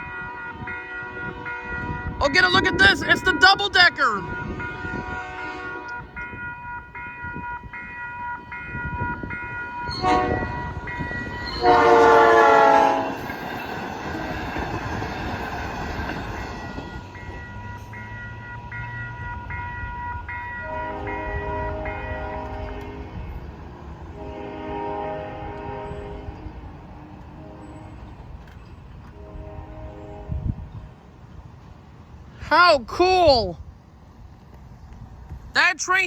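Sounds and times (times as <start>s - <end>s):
train horn blast: 0.0s - 2.2s, 4.2s - 6.8s, 9.8s - 13.3s, 20.6s - 23.4s, 24.1s - 26.6s, 27.2s - 28.0s, 29.1s - 30.7s
crossing warning bell ringing: 0.0s - 23.7s
rumble of train cars passing: 0.0s - 36.0s.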